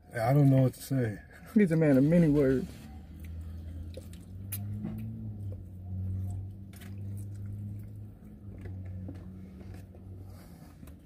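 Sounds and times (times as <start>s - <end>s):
low steady hum: 0.0s - 11.0s
people chewing with wet mouth sounds: 2.9s - 11.0s.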